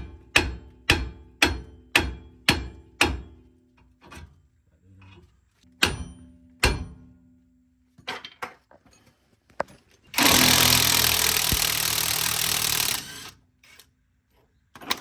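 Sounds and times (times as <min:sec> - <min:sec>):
hammer striking steel: 0:00.1 - 0:03.4, 0:05.8 - 0:07.2.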